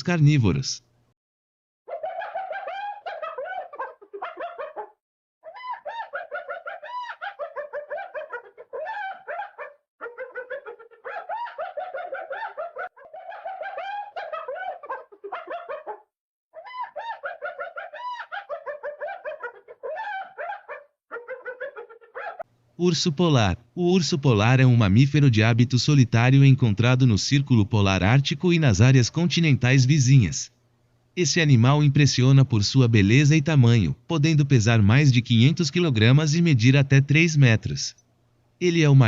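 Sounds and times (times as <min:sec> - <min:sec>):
hyena cackling: 0:01.9 - 0:22.4.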